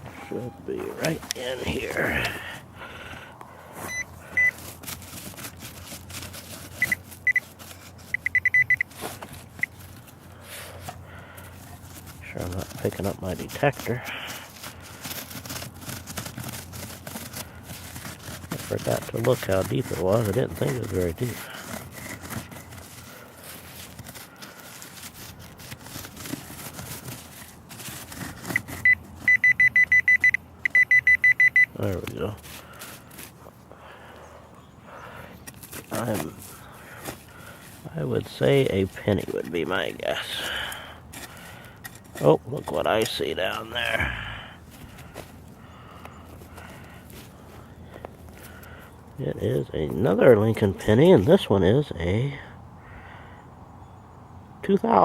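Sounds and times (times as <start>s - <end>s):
digging in soil: 0.0s - 52.5s
pinpointer beeping: 0.2s - 0.7s, 3.9s - 4.6s, 6.8s - 7.5s, 8.1s - 8.9s, 28.6s - 31.8s.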